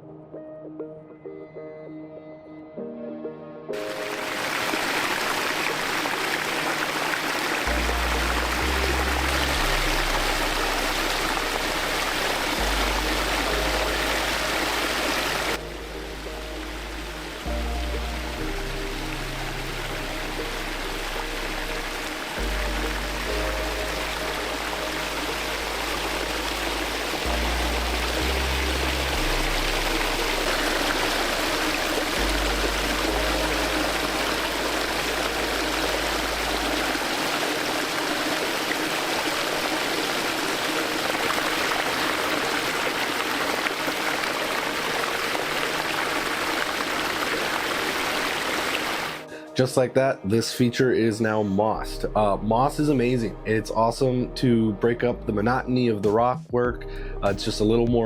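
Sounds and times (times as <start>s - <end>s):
water splashing over rocks: 3.8s - 49.3s
low music bass line: 7.7s - 37.4s, 51.6s - 58.0s.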